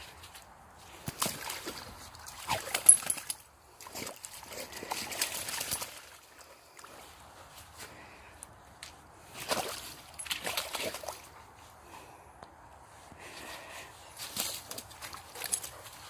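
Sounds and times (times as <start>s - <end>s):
dog splashing in muddy puddle: 0.0s - 7.1s, 9.3s - 11.4s, 14.2s - 16.0s.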